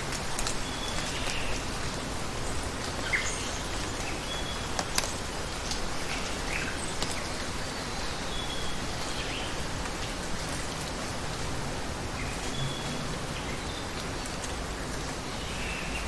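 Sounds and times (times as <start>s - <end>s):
water rushing: 8.7s - 16.0s.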